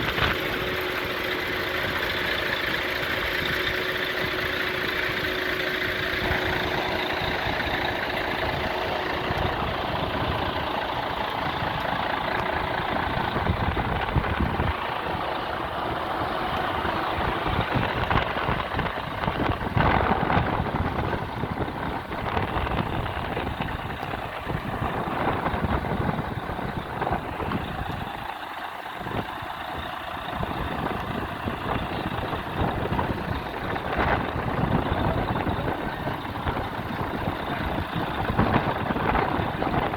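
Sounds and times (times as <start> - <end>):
road and wind noise: 0.0 - 39.9
truck engine running: 0.0 - 39.9.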